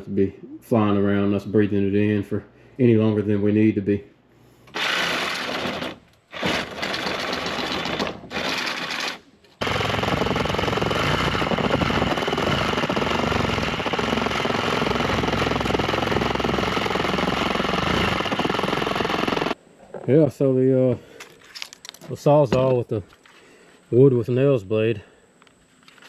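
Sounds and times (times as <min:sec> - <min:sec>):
reciprocating saw cutting: 0:04.7 - 0:19.6.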